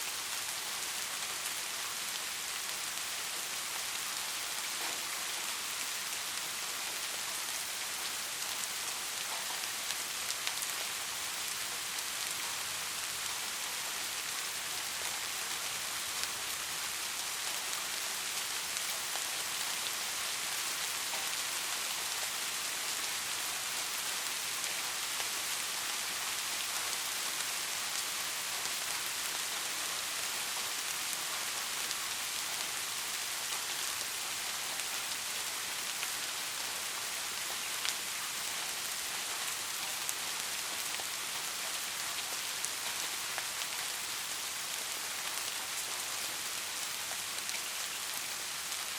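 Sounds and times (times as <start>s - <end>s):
steady rain: 0.0s - 48.9s.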